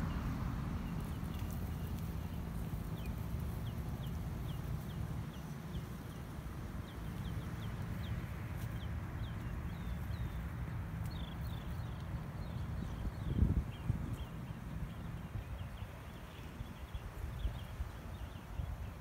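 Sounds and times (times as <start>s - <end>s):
bird chirping: 0.8s - 19.0s.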